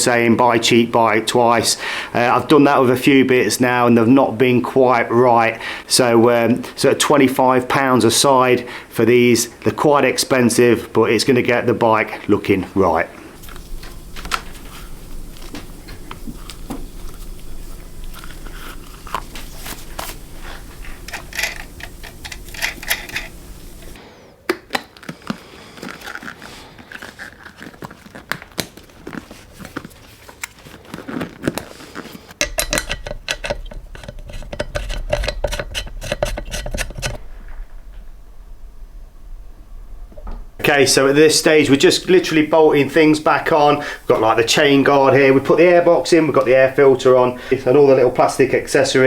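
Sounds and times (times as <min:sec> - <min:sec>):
low steady hum: 0:13.2 - 0:24.0, 0:32.4 - 0:49.0
small metal and plastic parts rattling: 0:13.4 - 0:24.0, 0:32.4 - 0:37.2.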